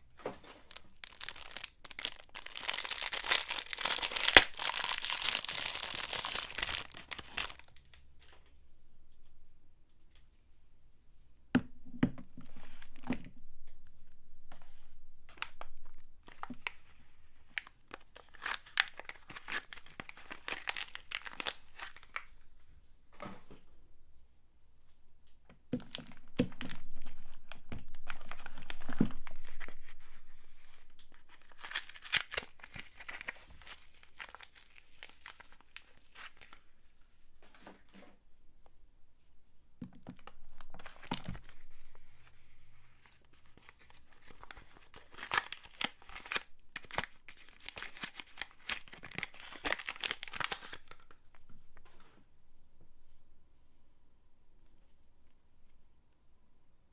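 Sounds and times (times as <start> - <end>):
wrapper crinkling and tearing: 0.6 - 7.8, 17.5 - 22.3, 25.8 - 36.6, 40.6 - 41.9, 43.4 - 51.2.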